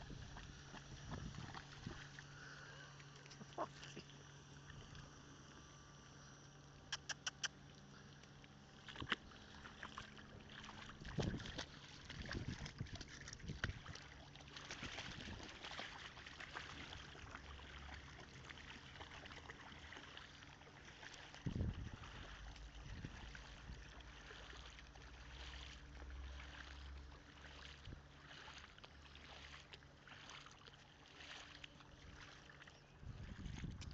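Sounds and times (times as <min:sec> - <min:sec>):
trickling water: 0:00.0 - 0:05.2, 0:07.8 - 0:33.9
steady low hum: 0:00.0 - 0:33.9
small ticks: 0:02.9 - 0:09.3.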